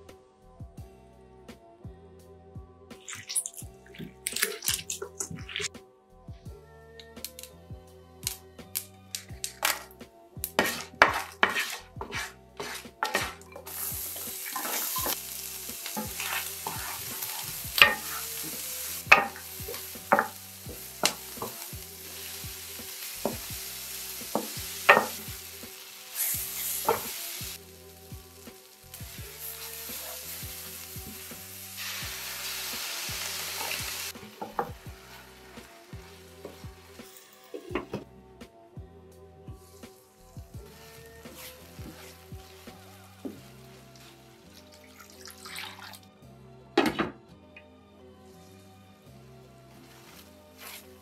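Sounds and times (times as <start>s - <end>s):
food sizzling: 3.0s - 5.7s, 8.2s - 38.0s, 39.7s - 46.0s, 48.3s - 51.0s
spices popping in hot oil: 3.0s - 5.7s, 7.0s - 7.6s, 8.2s - 37.8s, 40.7s - 46.0s
wooden spoon knocking on pan: 10.6s - 13.9s, 16.0s - 21.7s, 23.2s - 23.6s, 24.2s - 25.4s, 33.7s - 34.9s.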